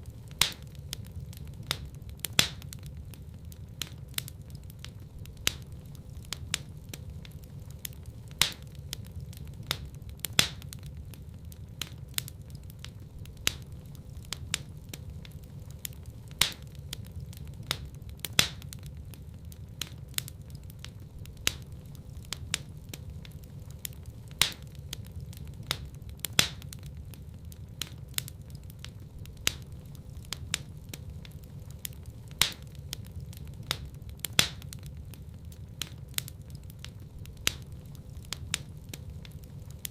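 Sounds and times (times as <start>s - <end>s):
fire crackles and pops: 0.0s - 39.9s
low rumble of flames: 0.0s - 39.9s.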